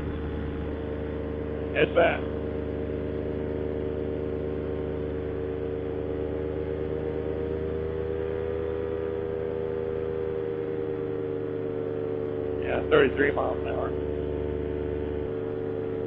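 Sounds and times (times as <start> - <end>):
paramotor engine running: 0.0 - 16.0.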